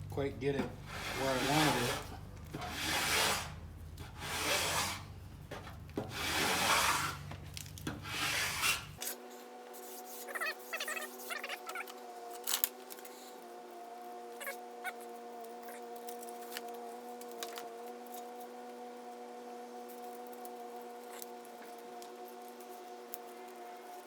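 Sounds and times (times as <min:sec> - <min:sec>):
sanding block rasping: 0:00.9 - 0:03.6, 0:04.2 - 0:05.0, 0:06.1 - 0:07.2, 0:08.0 - 0:09.0
small squeaks and clicks: 0:09.8 - 0:13.4, 0:14.4 - 0:18.6, 0:19.9 - 0:24.0.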